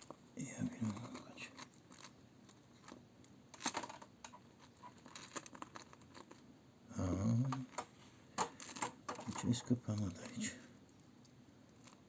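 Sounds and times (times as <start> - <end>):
small objects clicking and rustling: 0.8 - 6.4, 7.5 - 11.1, 11.7 - 12.0
murmured voice: 6.9 - 7.7, 9.4 - 10.7.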